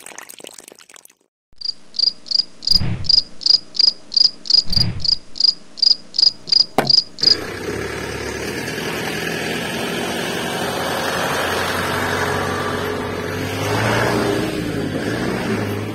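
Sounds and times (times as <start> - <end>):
cricket chirping: 1.6 - 7.3
electric motor humming: 6.4 - 8.3.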